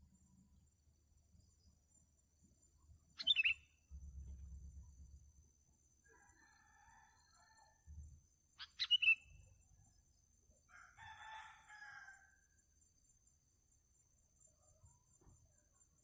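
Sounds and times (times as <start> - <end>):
sharp bird chirps: 2.7 - 5.2, 8.6 - 10.0
rooster crowing: 6.2 - 7.8, 10.7 - 12.4.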